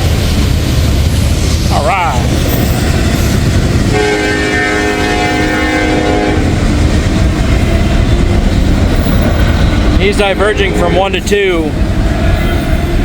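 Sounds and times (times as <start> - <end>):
freight train rumbling past: 0.0 - 13.0
locomotive air horn chord: 3.9 - 6.6.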